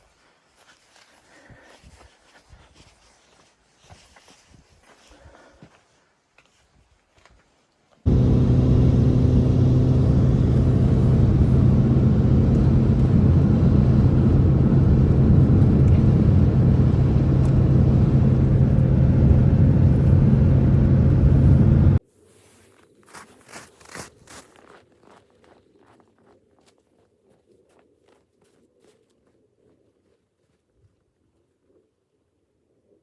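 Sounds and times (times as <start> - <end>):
motor humming: 8.1 - 22.0.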